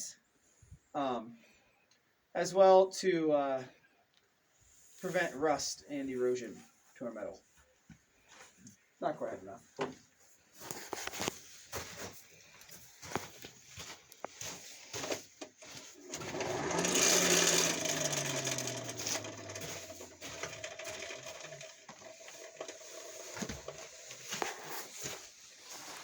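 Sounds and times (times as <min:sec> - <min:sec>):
hand-cranked blower whirring: 0:15.6 - 0:25.2.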